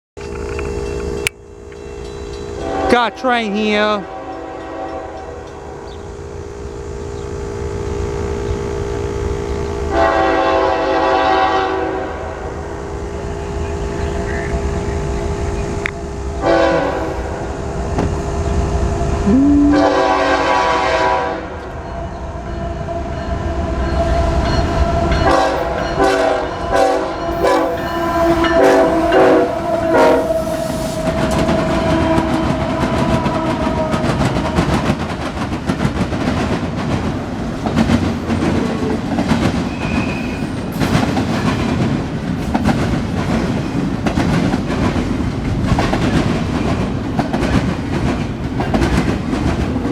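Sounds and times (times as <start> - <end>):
train cars rumbling and clattering: 0.1 - 49.9
locomotive air horn: 2.6 - 5.9, 9.9 - 12.5, 16.4 - 17.5, 19.2 - 21.6, 25.2 - 34.7.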